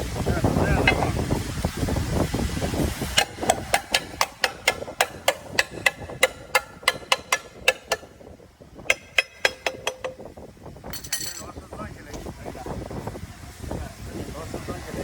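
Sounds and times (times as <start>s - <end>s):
hammer striking metal: 0.8s - 1.2s, 3.2s - 8.3s, 8.9s - 10.3s, 11.0s - 11.5s.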